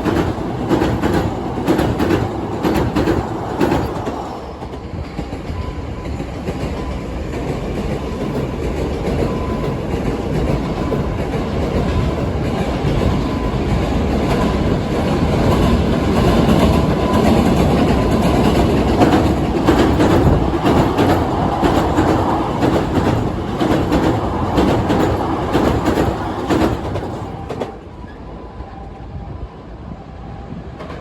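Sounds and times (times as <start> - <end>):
train rumbling over bridge: 0.0 - 31.0
wheel clacks over rail joints: 6.5 - 27.8.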